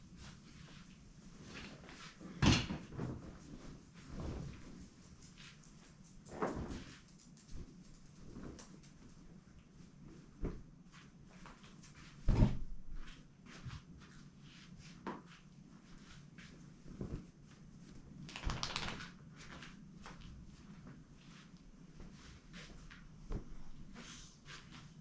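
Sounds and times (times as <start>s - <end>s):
rustling: 0.1s - 12.2s.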